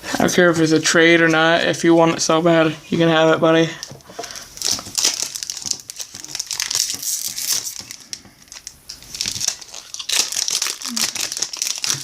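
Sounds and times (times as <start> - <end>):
foil wrapper crinkling: 4.0 - 12.0.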